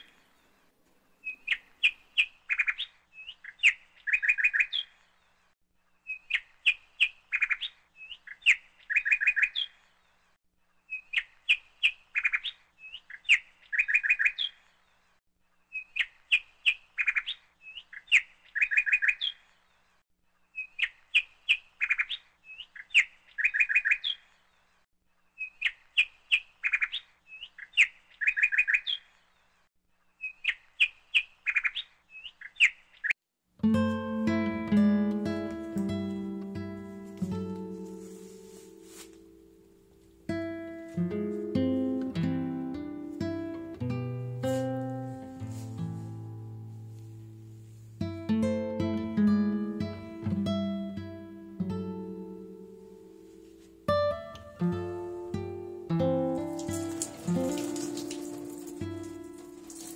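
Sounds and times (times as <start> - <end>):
songbird chirping: 0.0 - 33.2, 33.8 - 59.9.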